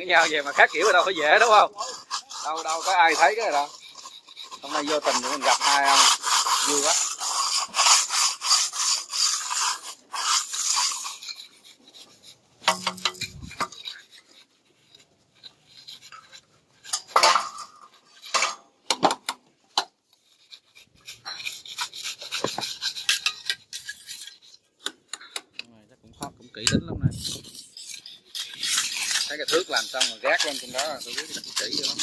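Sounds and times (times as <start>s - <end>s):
plastering float scraping on render: 0.0s - 32.0s
tools tapping and knocking: 12.6s - 13.9s, 16.9s - 20.0s.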